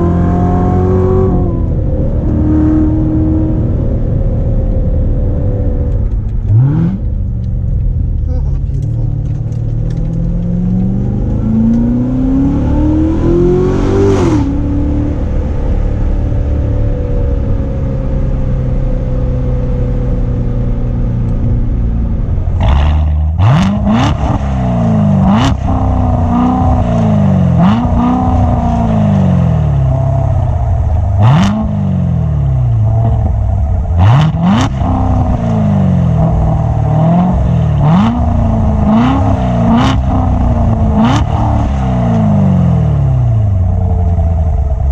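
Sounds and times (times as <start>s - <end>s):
car engine revving: 0.0s - 44.9s
exhaust cracks: 3.6s - 11.9s, 19.5s - 44.9s.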